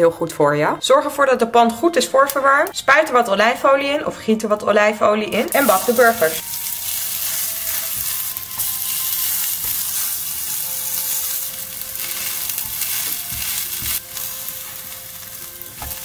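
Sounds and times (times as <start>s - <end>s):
burgers sizzling in frying pan: 5.5s - 16.0s.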